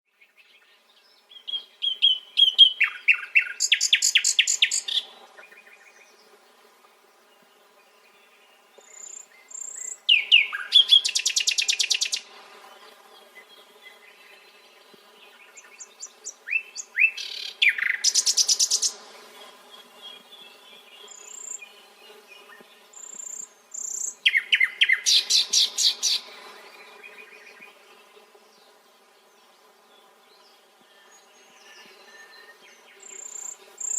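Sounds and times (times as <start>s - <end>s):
nightingale singing: 0.3s - 6.0s, 8.9s - 12.3s, 15.3s - 19.0s, 22.4s - 27.6s.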